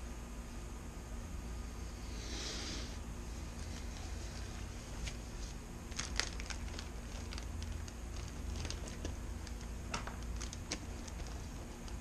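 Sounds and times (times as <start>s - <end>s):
steady low hum: 0.0s - 12.0s
small parts clicking and rustling: 5.9s - 12.0s.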